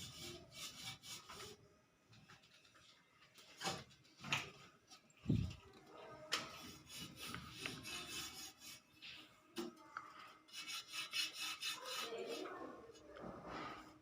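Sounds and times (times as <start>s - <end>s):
scratchy scrapes: 0.0s - 1.6s, 6.4s - 9.3s, 10.4s - 14.0s
faint scratching and rubbing: 0.0s - 1.8s, 5.2s - 14.0s.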